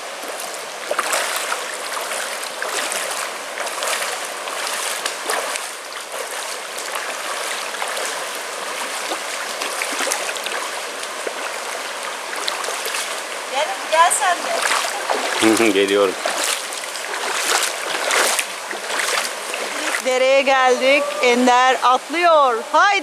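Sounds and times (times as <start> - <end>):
stream water rushing: 0.0 - 23.0
water splashes: 0.0 - 23.0.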